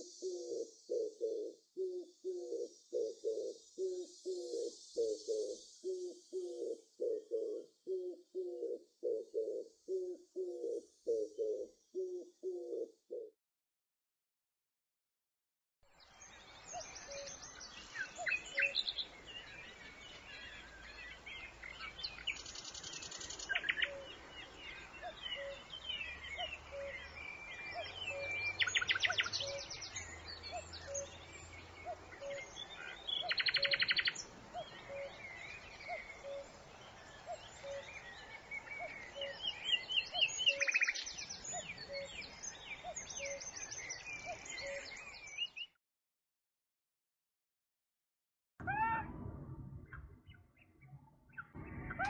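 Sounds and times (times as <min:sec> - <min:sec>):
birds singing and chirping: 0:16.2 - 0:45.7.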